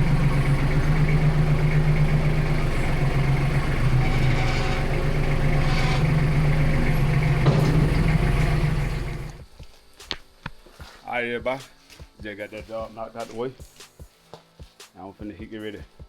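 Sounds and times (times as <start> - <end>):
engine idling: 0.0 - 9.4.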